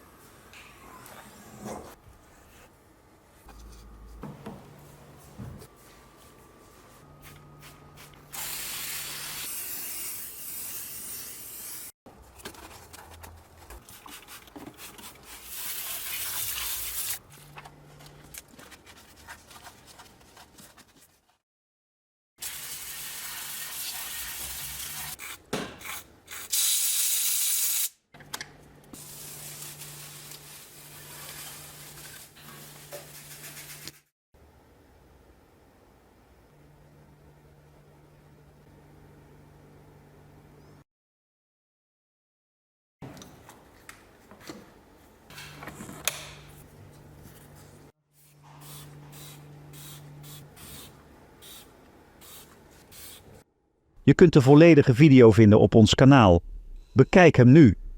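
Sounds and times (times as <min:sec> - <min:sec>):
cleaning spray hissing: 0:48.6 - 0:53.3.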